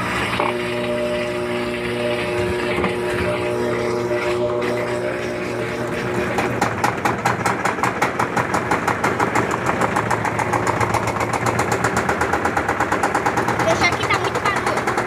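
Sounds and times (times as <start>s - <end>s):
washing machine motor hum: 0.0s - 15.0s
washing machine suspension knocking: 6.3s - 15.0s.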